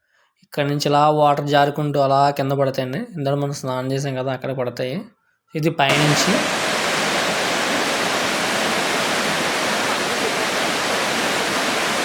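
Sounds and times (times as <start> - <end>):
waterfall rushing: 5.9 - 12.0.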